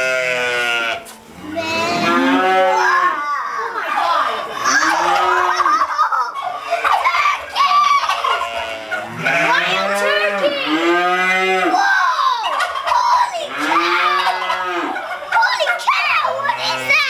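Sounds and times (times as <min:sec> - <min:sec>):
cattle mooing: 0:00.0 - 0:03.2, 0:04.6 - 0:05.6, 0:08.2 - 0:11.8, 0:13.5 - 0:15.0.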